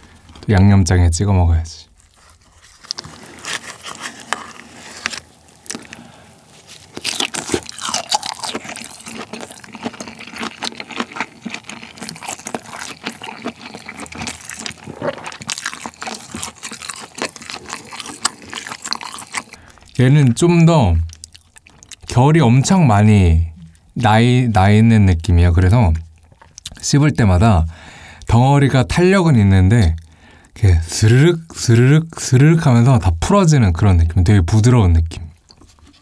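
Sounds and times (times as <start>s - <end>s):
wet chewing clicks and smacks: 6.9s - 20.0s, 21.0s - 22.2s, 26.0s - 26.8s.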